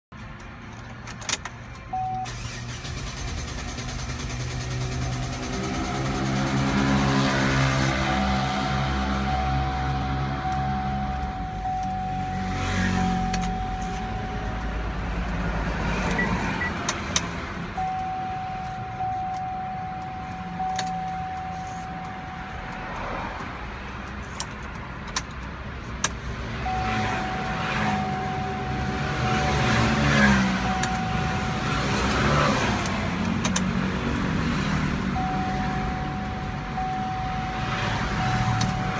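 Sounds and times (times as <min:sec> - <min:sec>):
engine cranking without starting: 0:02.0 - 0:08.2
steady high tone: 0:07.5 - 0:15.1, 0:26.6 - 0:32.6, 0:35.1 - 0:38.9.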